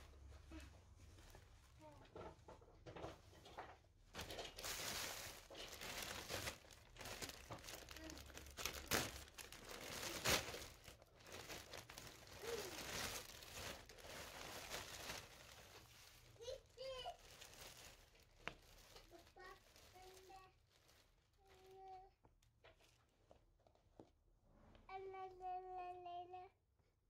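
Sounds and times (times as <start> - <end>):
packaging crinkling: 4.2 - 21.8.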